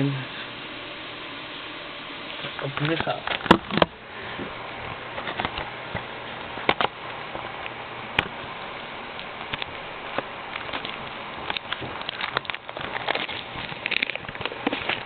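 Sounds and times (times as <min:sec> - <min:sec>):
shrink-wrap plastic crinkling: 0:09.1 - 0:15.0.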